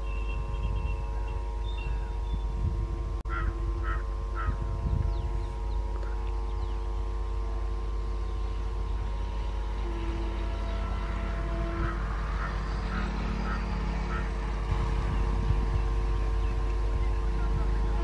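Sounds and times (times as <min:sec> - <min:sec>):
train rumbling and humming: 0:00.0 - 0:18.0.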